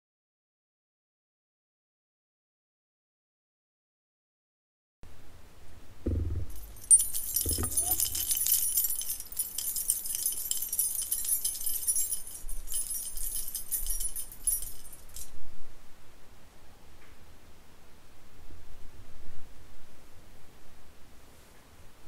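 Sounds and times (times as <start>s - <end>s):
soft low thuds: 6.0s - 8.3s
metallic jingling and rattling: 6.1s - 15.4s.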